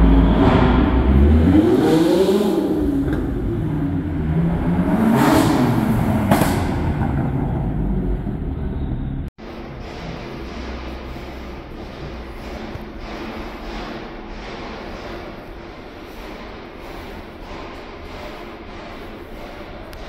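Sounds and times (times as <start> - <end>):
sports car engines revving: 0.0 - 9.2.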